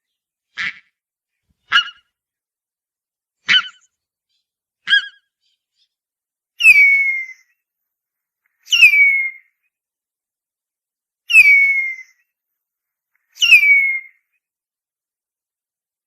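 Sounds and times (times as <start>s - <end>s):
eagle calling and wailing: 1.6s - 2.1s, 3.4s - 5.9s, 6.6s - 7.5s, 8.6s - 9.5s, 11.3s - 12.2s, 13.3s - 14.2s.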